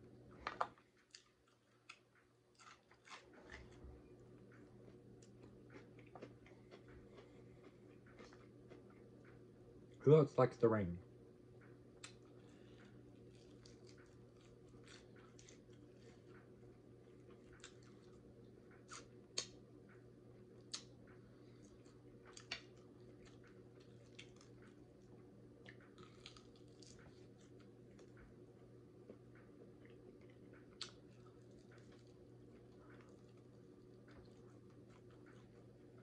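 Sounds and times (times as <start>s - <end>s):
faint room hum: 0.0s - 36.0s
chewing: 1.0s - 9.4s, 12.0s - 19.6s, 20.6s - 28.3s, 29.0s - 36.0s
lip smacks: 29.7s - 35.6s.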